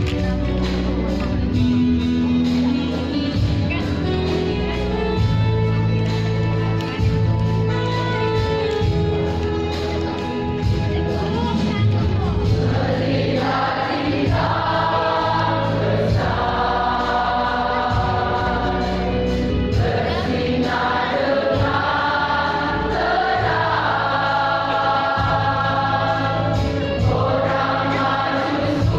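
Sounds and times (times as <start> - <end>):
instrumental accompaniment: 0.0 - 28.9
church choir singing: 12.5 - 28.9.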